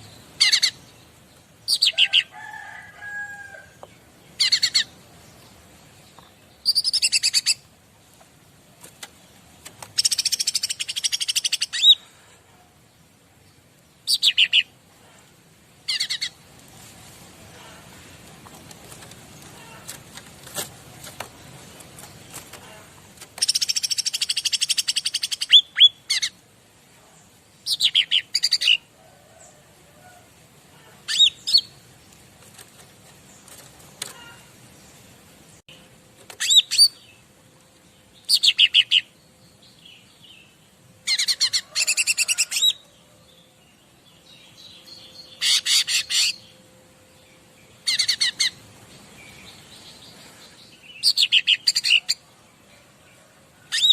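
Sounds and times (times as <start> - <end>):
songbird trilling and chirping: 0.0 - 2.3, 3.8 - 7.7, 10.0 - 12.0, 23.4 - 26.4, 38.1 - 46.6, 47.2 - 52.4.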